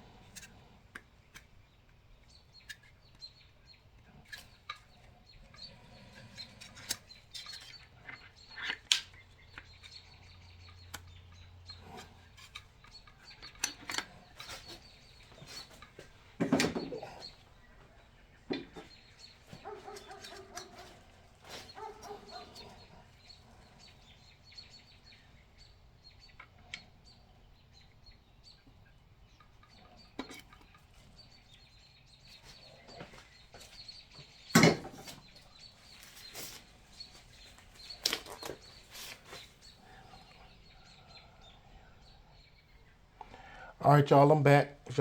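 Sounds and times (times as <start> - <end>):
faint bird calls: 2.2 - 43.8
sharp knocks or clanks: 16.4 - 17.2, 34.5 - 35.2.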